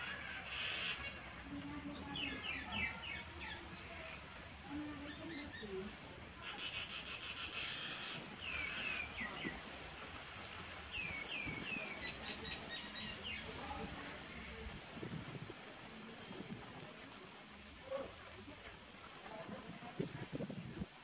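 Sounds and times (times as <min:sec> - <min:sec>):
small birds chirping: 0:10.9 - 0:13.8.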